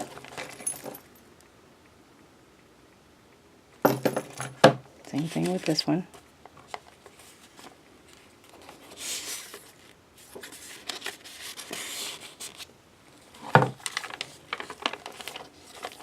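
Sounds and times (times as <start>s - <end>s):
paper pages turning: 6.7s - 12.7s, 13.3s - 16.0s.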